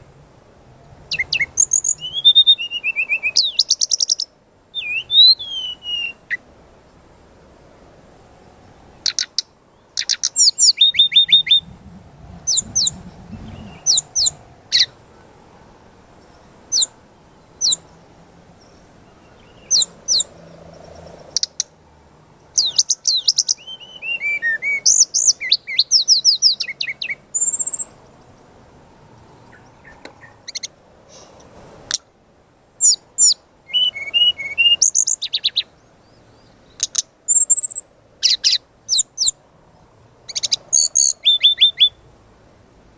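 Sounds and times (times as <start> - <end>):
high bird whistles: 1.1 - 6.4, 10.0 - 11.7, 12.5 - 14.9, 16.7 - 16.9, 19.5 - 20.3, 22.6 - 27.9, 32.8 - 35.6, 40.3 - 42.0
bird trilled phrases: 12.5 - 14.9.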